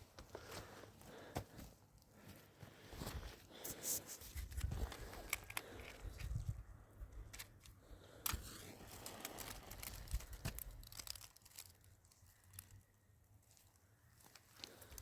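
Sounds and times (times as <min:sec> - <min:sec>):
dry material crinkling: 0:08.7 - 0:15.0.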